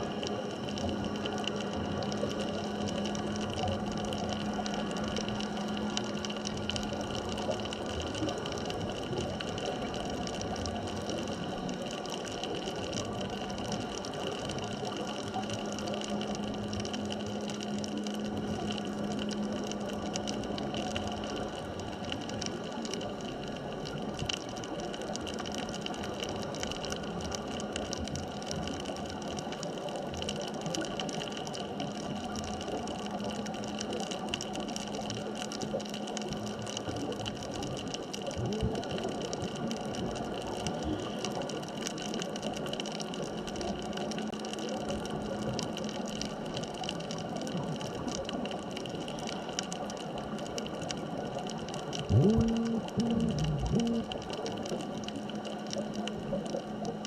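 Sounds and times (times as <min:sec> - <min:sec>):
faint steady tones: 0:00.0 - 0:57.0
low hum: 0:52.0 - 0:57.0.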